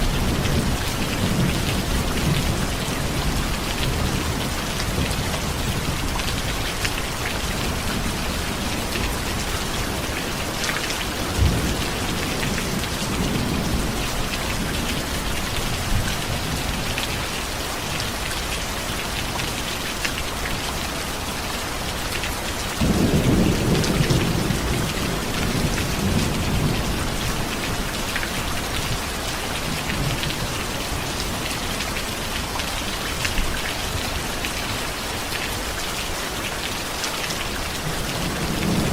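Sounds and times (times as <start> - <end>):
thunder rumbling: 0.0 - 6.6, 22.8 - 31.5, 37.8 - 38.9
heavy rain falling: 0.0 - 38.9.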